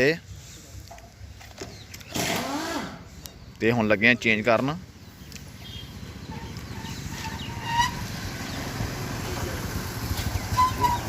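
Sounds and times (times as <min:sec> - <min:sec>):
low engine-like rumble: 0:04.8 - 0:11.0
short bird calls: 0:10.4 - 0:11.0.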